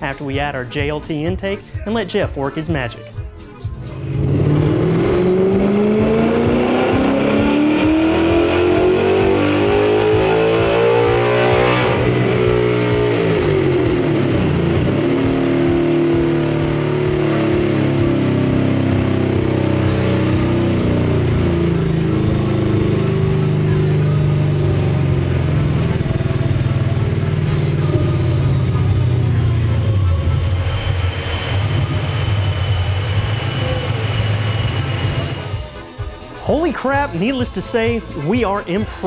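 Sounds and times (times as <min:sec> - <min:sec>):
engine revving at full throttle: 0:03.8 - 0:36.4.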